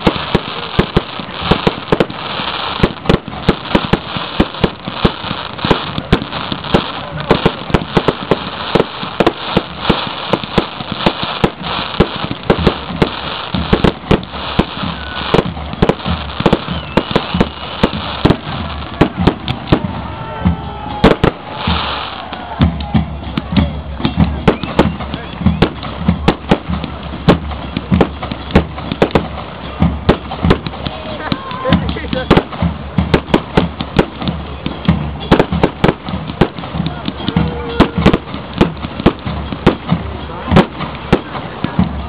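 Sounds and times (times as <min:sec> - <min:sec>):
fireworks bangs and cracks: 0:00.0 - 0:42.0.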